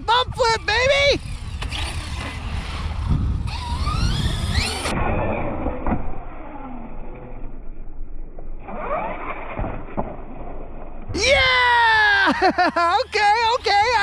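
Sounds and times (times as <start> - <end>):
wind rumble on microphone: 0.0 - 8.8
electric motor whining: 0.7 - 7.4.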